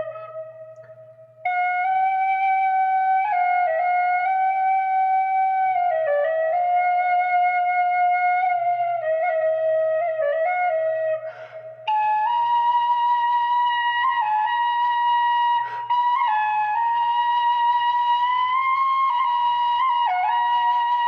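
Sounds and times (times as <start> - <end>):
flute slow melody: 0.0 - 21.0
quick breath: 11.2 - 11.8, 15.6 - 15.9.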